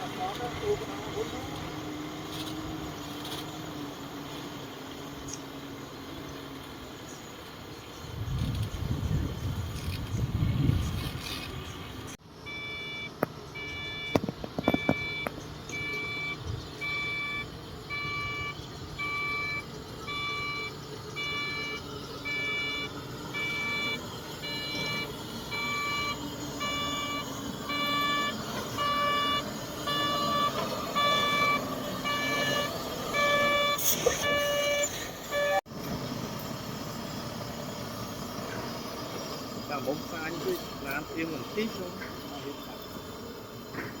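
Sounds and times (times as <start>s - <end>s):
reversing alarm beeping: 12.4s - 35.6s.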